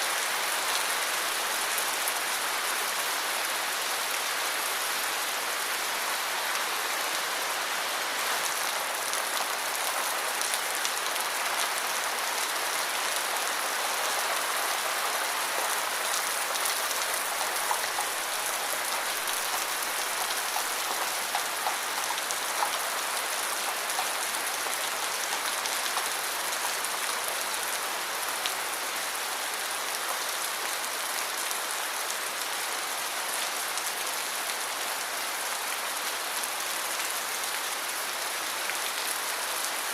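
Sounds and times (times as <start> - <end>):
steady rain hiss: 0.0 - 39.9
raindrops ticking on a surface: 15.3 - 27.4.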